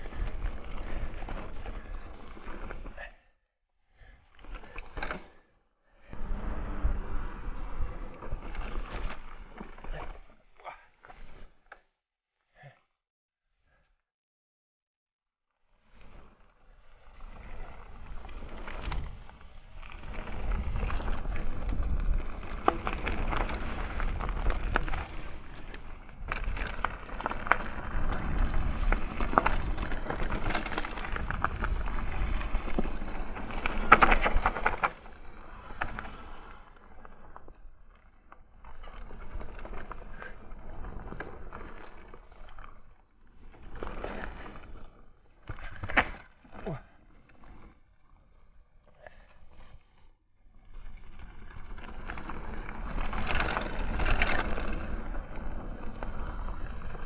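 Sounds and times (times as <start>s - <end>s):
bike tyre noise on dirt: 0.0s - 3.3s, 4.0s - 11.6s, 15.8s - 57.0s.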